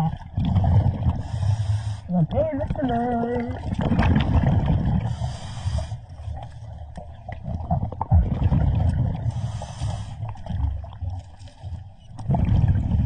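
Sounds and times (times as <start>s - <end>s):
exhaled bubbles rumbling: 0.0s - 13.0s
regulator breathing hiss: 1.2s - 2.1s, 5.1s - 6.0s, 9.3s - 10.2s.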